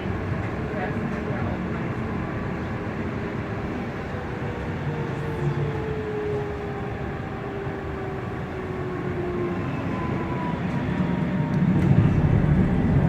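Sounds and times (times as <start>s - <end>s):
train wheel and track rumble: 0.0s - 13.0s.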